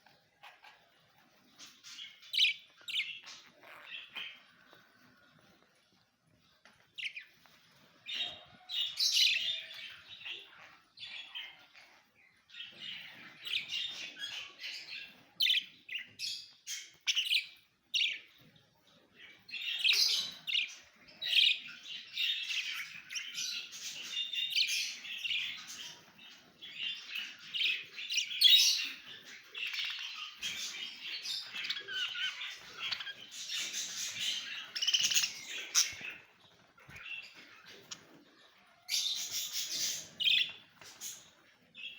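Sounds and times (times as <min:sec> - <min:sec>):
small birds chirping in chorus: 0:00.0 - 0:41.9.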